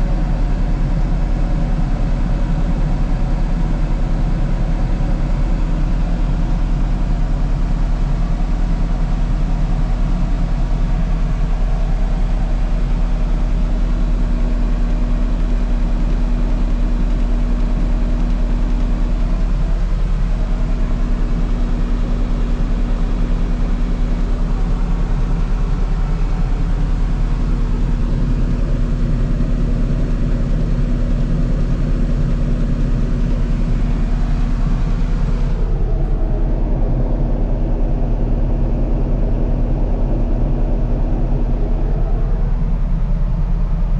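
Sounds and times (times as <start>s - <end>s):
diesel engine humming: 18.6s - 29.9s, 32.3s - 43.9s.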